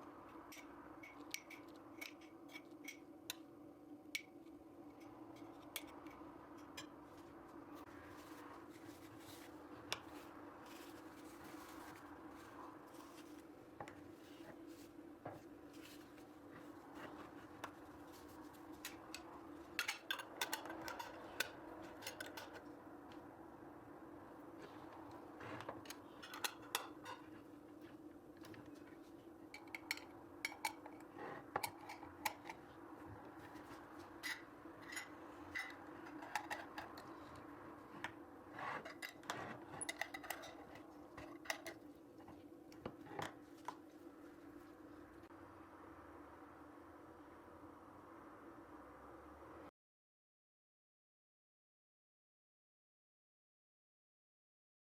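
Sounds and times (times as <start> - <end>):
utensils and dishes clinking: 18.8 - 22.6, 25.8 - 27.4, 34.2 - 37.4.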